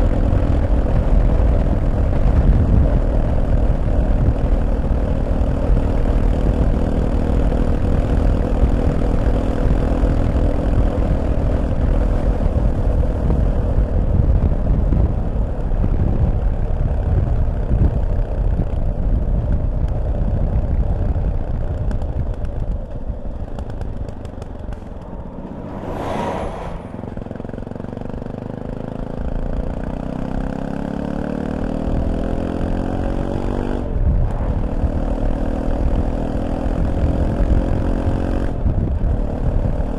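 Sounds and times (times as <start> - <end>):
motorcycle engine running: 0.0 - 25.9
wind rush: 23.0 - 28.8, 33.5 - 37.6
short sharp sound: 24.8 - 27.9.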